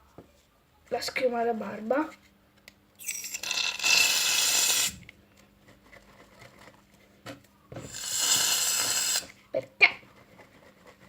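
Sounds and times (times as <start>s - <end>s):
aerosol can spraying: 3.8s - 5.0s, 7.9s - 9.3s.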